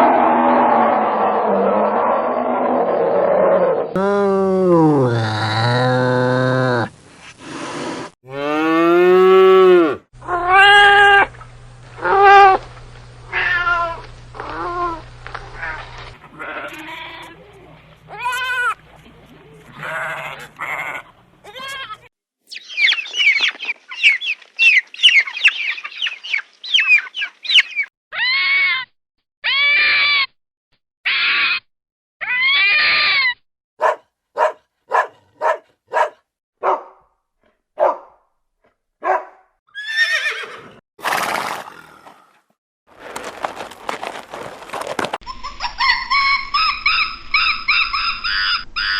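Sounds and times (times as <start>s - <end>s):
goats bleating: 15.6s - 18.8s, 19.5s - 22.1s.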